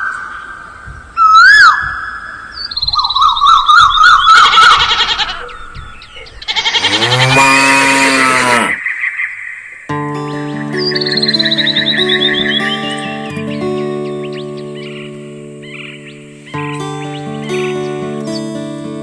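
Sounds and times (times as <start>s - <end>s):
high wavering animal cries: 1.2s - 2.1s, 2.9s - 8.8s
cow mooing: 6.5s - 8.8s.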